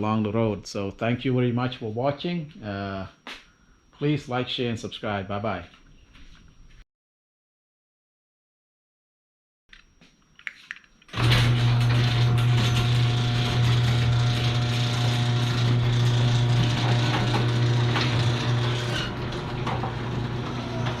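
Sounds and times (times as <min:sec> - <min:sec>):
garage door opener running: 0:11.1 - 0:21.0.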